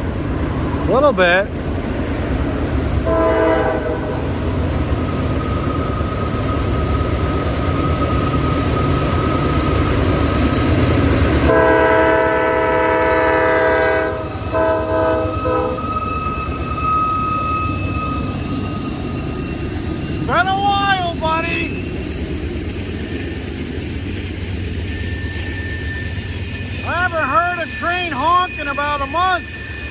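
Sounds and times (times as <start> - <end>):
passing train rumble: 0.0 - 29.9
locomotive horn blasts: 3.0 - 4.4, 11.4 - 16.0.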